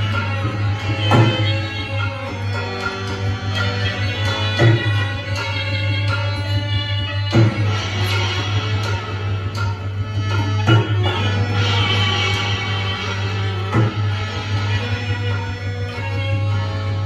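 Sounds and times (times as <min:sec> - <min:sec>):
folk melody over drone: 0:00.0 - 0:17.0
heavy hand drum strokes: 0:07.3 - 0:15.2.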